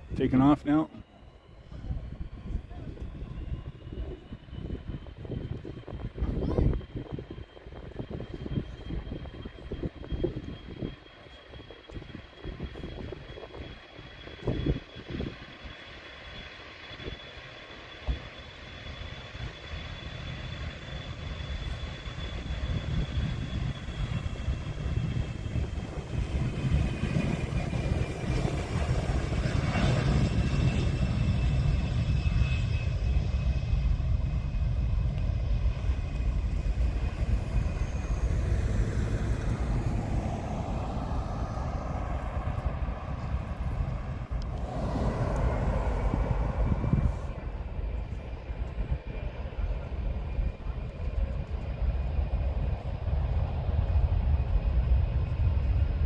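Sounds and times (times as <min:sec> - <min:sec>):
aircraft engines whining: 0:00.0 - 0:56.0
low engine rumble: 0:22.2 - 0:56.0.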